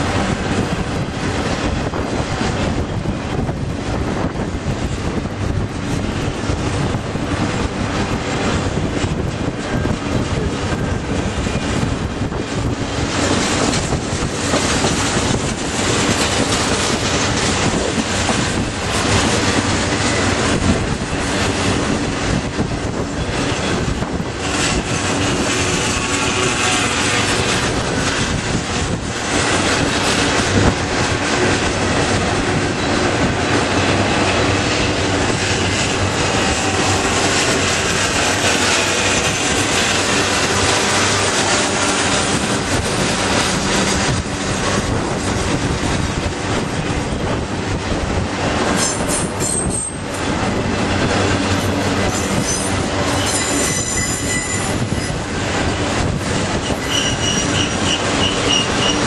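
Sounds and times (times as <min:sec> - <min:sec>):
train wheels rumbling on rail: 0:00.0 - 0:59.0
high-pitched wheel squeal: 0:52.1 - 0:55.2, 0:56.6 - 0:59.0.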